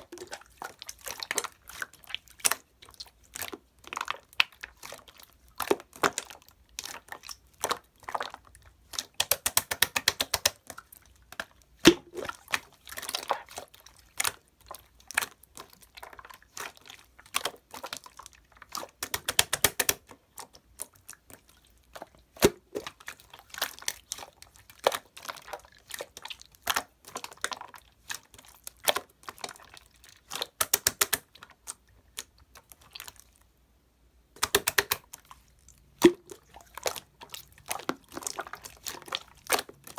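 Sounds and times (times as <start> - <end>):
close-up crinkling and crunching: 20.0 - 33.5, 34.4 - 39.9.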